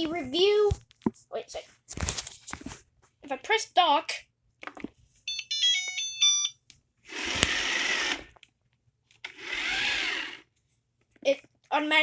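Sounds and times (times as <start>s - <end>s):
robot vacuum rushing noise: 7.1s - 8.3s.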